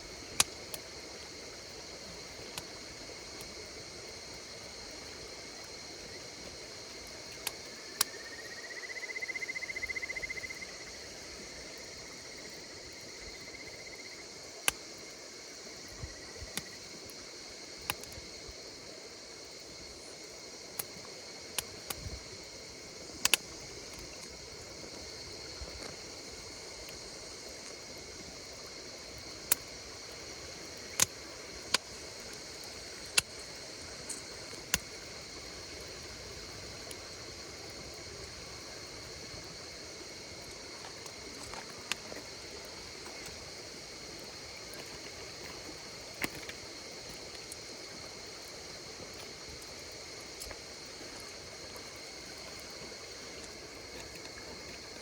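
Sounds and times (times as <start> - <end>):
wood fire crackling: 0.0 - 8.2, 20.7 - 55.0
insects chirring: 0.0 - 55.0
sharp pops of fire: 30.8 - 35.0.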